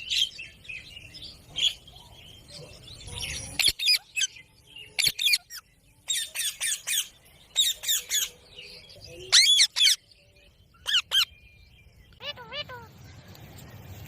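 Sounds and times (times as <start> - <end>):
parakeet squawking: 12.2 - 12.9.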